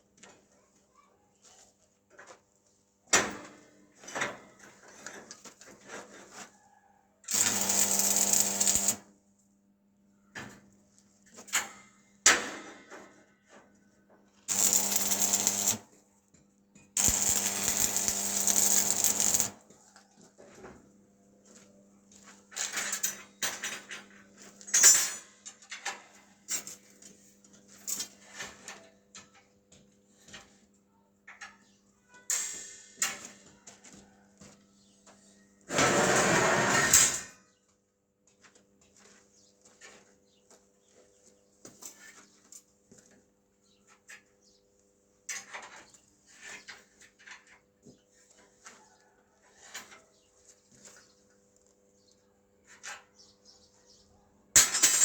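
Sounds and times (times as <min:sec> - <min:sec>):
electric buzz with hiss: 0:07.3 - 0:09.0, 0:14.5 - 0:15.8, 0:17.0 - 0:19.5.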